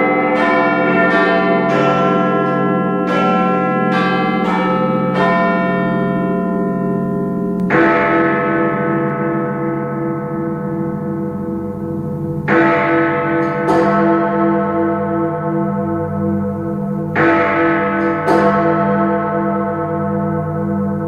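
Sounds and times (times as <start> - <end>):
large clock-tower bells striking: 0.0 - 21.0.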